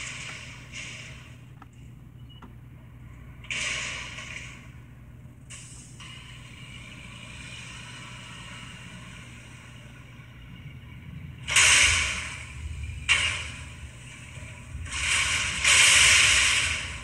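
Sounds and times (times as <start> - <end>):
burst of hissing air: 3.5 - 4.6, 11.4 - 17.0.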